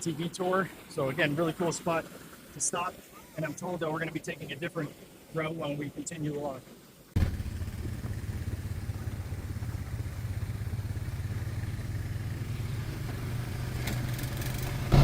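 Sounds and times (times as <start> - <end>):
atv engine running: 7.2 - 15.0.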